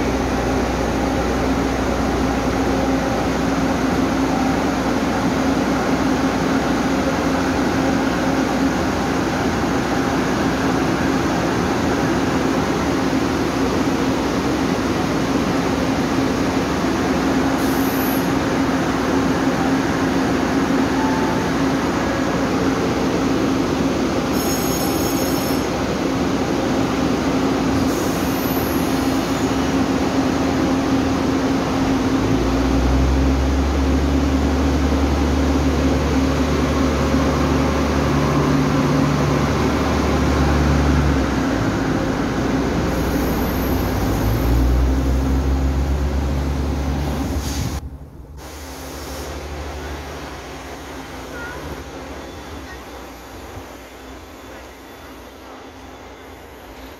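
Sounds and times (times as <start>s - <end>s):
deep diesel engine drone: 0.0s - 10.8s, 30.2s - 51.2s.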